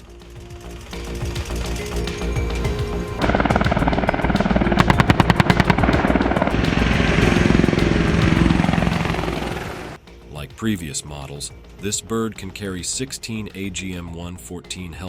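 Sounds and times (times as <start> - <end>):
helicopter rotor and turbine: 0.0 - 10.0.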